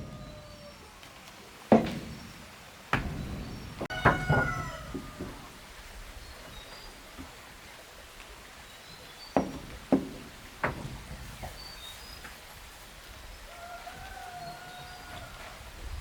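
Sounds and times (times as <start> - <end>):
sharp knocks: 1.7 - 5.6, 9.4 - 11.6.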